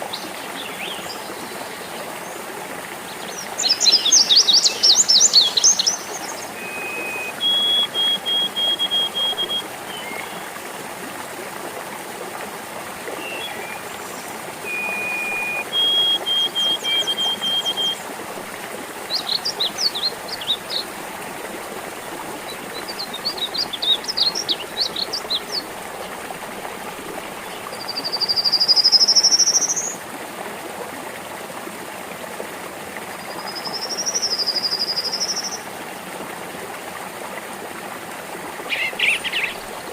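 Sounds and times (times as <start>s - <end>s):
stream trickling: 0.0s - 39.9s
birds singing: 3.1s - 10.5s, 13.2s - 18.0s, 19.0s - 21.0s, 22.1s - 26.2s, 38.7s - 39.9s.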